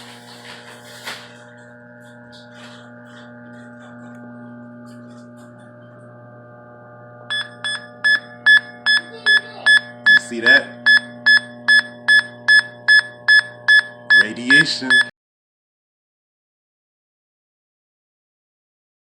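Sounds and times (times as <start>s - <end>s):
steady electrical hum: 0.0s - 15.1s
high-pitched meter alarm beeps: 7.3s - 15.1s.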